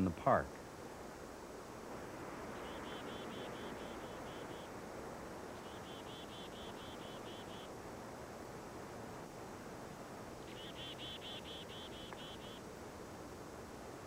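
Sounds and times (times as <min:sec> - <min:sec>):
bird chirping trills: 0:02.5 - 0:07.7, 0:10.4 - 0:12.7.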